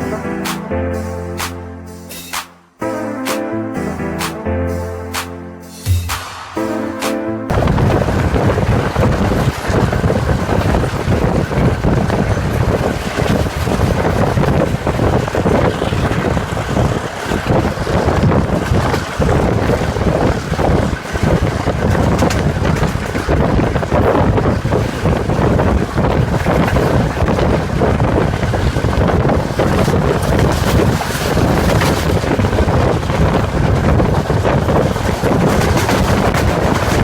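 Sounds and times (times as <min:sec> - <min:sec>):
diesel locomotive rumble: 0:07.5 - 0:37.0
wind rushing past microphone: 0:07.5 - 0:37.0.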